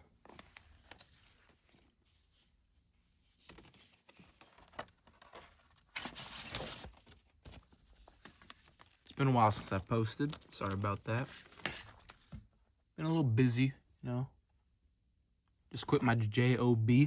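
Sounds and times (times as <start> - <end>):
paper sleeve rustling: 0.2 - 2.6, 3.2 - 12.3.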